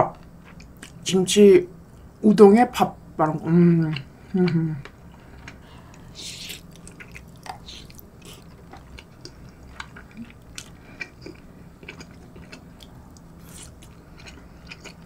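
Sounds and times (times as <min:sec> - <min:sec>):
wet chewing mouth sounds: 0:03.9 - 0:15.0.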